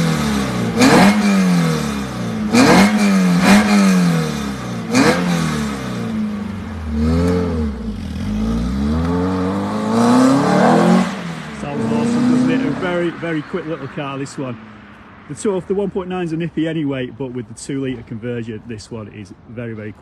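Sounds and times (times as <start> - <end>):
car engine revving: 0.0 - 14.6.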